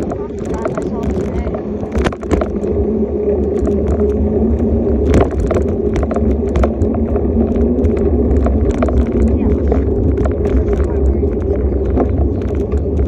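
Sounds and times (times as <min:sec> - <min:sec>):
small clicks and rattles: 0:00.0 - 0:02.8, 0:03.4 - 0:13.0
bike rolling rumble: 0:00.0 - 0:13.0
low hum: 0:00.0 - 0:13.0.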